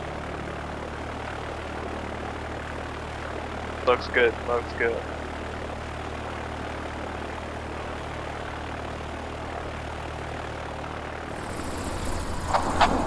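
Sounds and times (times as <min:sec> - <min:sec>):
propeller aircraft engine droning: 0:00.0 - 0:13.0
wheels rolling on runway: 0:11.2 - 0:13.0.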